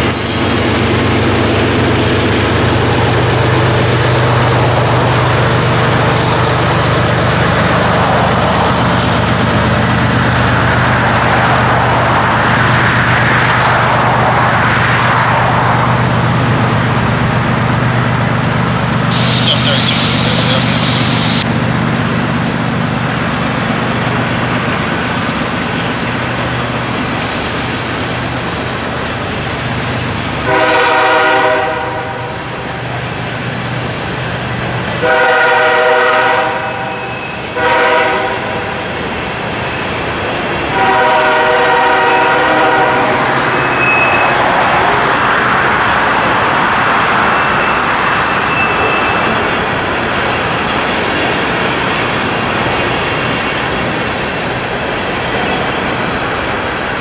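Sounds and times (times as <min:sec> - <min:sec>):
train wheels on rails: 0:00.0 - 0:57.0
locomotive air horn blasts: 0:19.1 - 0:21.4, 0:30.5 - 0:32.4, 0:35.0 - 0:38.7, 0:40.7 - 0:44.3.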